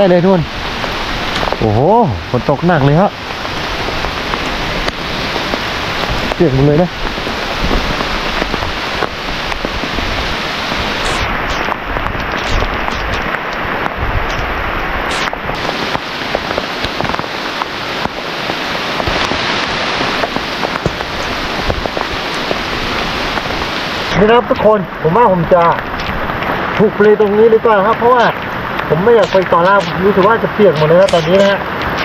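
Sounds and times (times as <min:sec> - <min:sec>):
heavy rain pouring: 0:00.0 - 0:32.0.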